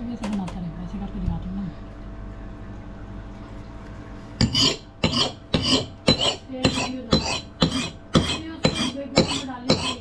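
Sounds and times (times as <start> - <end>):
metallic scraping strokes on axe head: 4.4 - 10.0.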